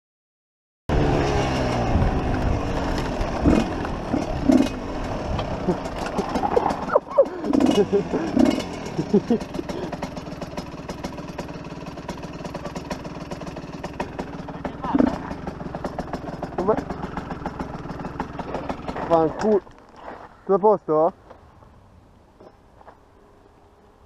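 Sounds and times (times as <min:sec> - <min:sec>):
wind and road noise on microphone: 0:00.9 - 0:05.7
dirt bike engine running: 0:00.9 - 0:20.3
voices calling out: 0:05.4 - 0:08.4.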